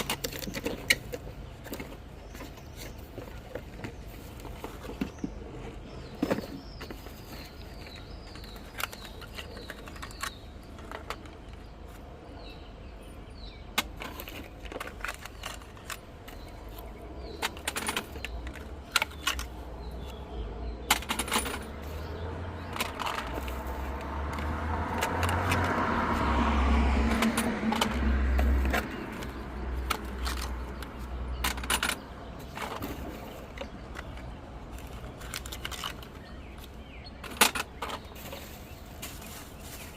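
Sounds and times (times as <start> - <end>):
low engine rumble: 0.0 - 39.9.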